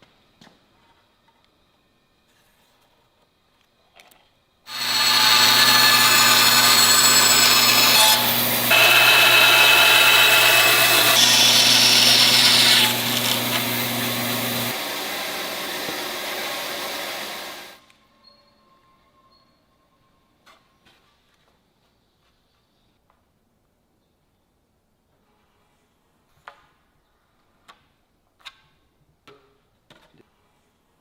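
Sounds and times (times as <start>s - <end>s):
woodworking power tool: 4.7s - 17.8s.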